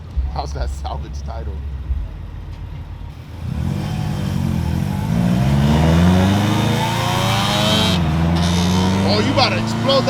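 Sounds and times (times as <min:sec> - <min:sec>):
rotary engine accelerating hard: 0:03.1 - 0:10.0
passenger joking: 0:03.2 - 0:10.0.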